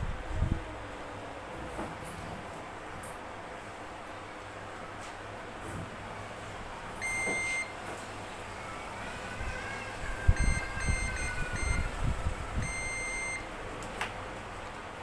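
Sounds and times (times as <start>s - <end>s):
multimeter continuity beeps: 7.0s - 7.8s, 10.4s - 11.9s, 12.6s - 13.5s.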